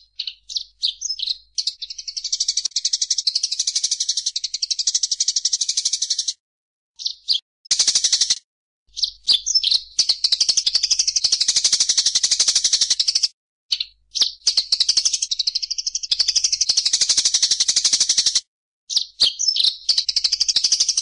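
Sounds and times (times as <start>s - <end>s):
songbird trilling: 0.0s - 6.3s, 7.0s - 12.0s, 18.9s - 21.0s.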